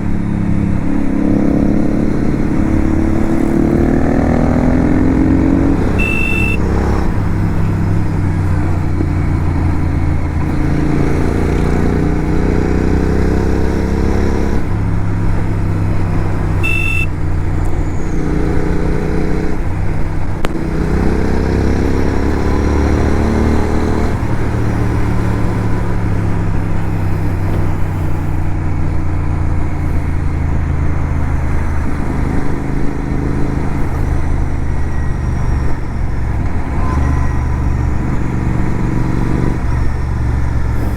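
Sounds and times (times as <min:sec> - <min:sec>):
motorcycle engine accelerating: 0:00.0 - 0:40.9
wind and road noise: 0:00.0 - 0:40.9
short high beep: 0:06.0 - 0:06.8, 0:16.6 - 0:17.2.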